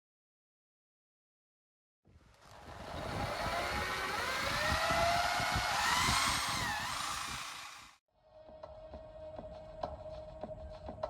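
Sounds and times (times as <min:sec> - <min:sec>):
motor whine rising in pitch: 0:02.3 - 0:08.0.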